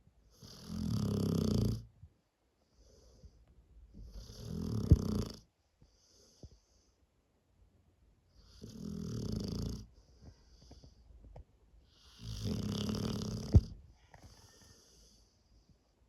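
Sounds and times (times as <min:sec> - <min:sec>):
dog snoring: 0:00.3 - 0:01.9, 0:04.0 - 0:05.5, 0:08.4 - 0:10.0, 0:11.9 - 0:15.2.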